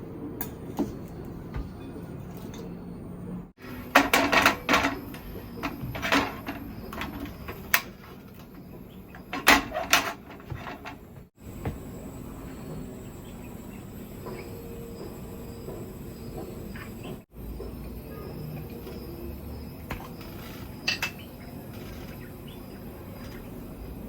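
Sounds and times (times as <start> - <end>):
objects knocking and clattering: 3.6 - 11.8, 19.9 - 22.2.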